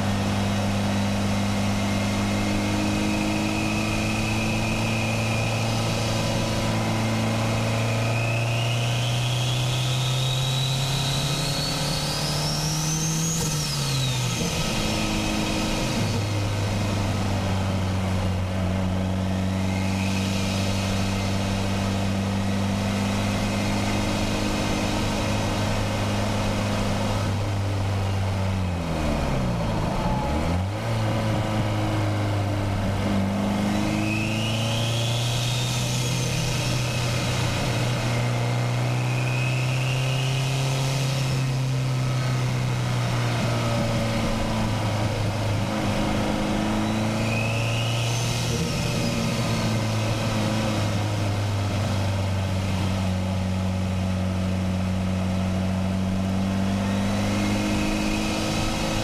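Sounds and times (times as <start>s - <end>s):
car engine revving: 0.0s - 59.0s
turbo whistle: 3.3s - 6.0s, 7.8s - 16.1s, 39.0s - 40.8s, 46.8s - 49.4s.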